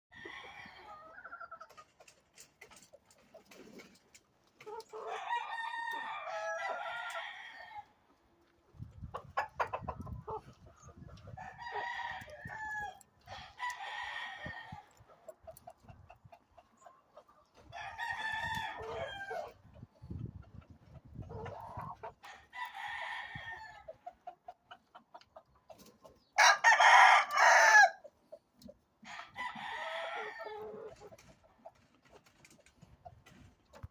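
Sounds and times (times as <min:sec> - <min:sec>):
rooster crowing: 0:05.1 - 0:07.8, 0:26.4 - 0:28.0.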